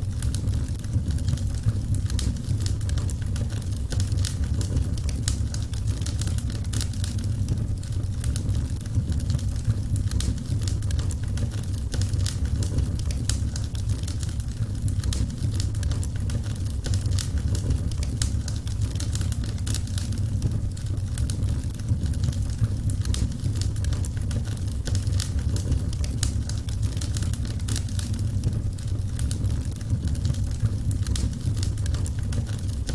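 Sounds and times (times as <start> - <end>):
wood fire crackling and popping: 0.0 - 32.9.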